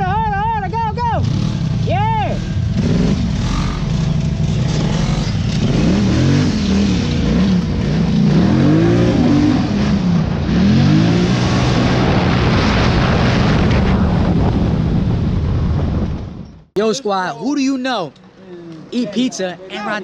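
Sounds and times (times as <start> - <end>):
engine revving: 1.2 - 14.4.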